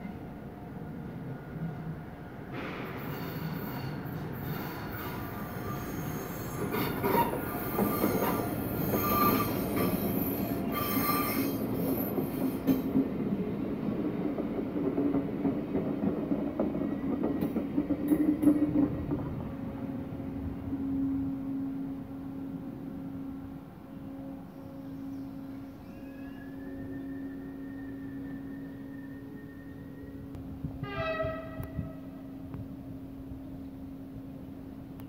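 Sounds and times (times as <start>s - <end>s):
train low hum: 0.0s - 35.0s
train wheels squealing: 2.6s - 13.0s, 24.4s - 32.0s.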